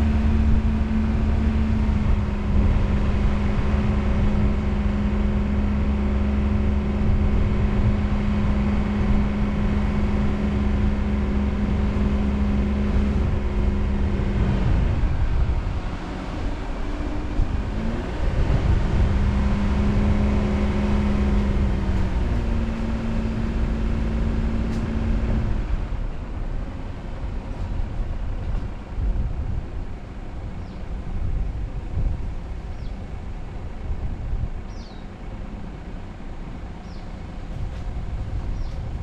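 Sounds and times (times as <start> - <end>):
car engine while driving: 0.0 - 39.0
tyre and wind rumble: 0.0 - 39.0.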